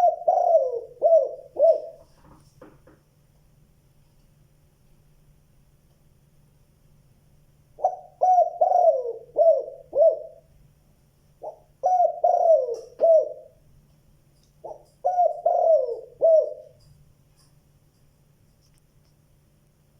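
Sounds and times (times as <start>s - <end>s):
dove cooing: 0.0s - 2.1s, 7.8s - 10.5s, 11.4s - 13.6s, 14.6s - 16.8s.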